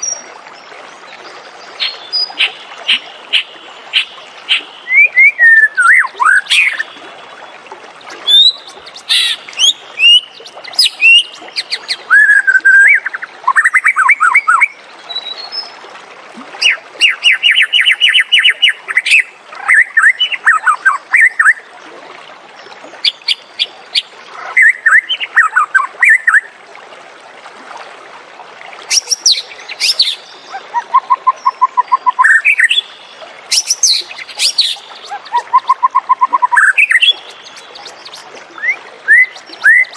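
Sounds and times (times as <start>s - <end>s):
songbird whistling and trilling: 4.9s - 6.9s, 8.2s - 11.4s, 12.1s - 15.4s, 28.9s - 39.9s.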